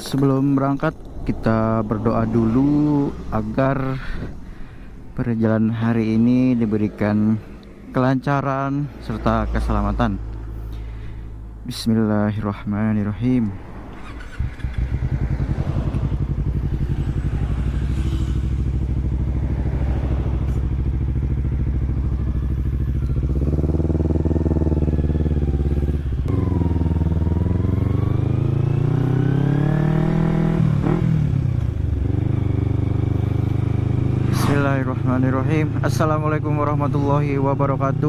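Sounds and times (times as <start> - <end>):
motorcycle engine revving: 13.9 - 38.0.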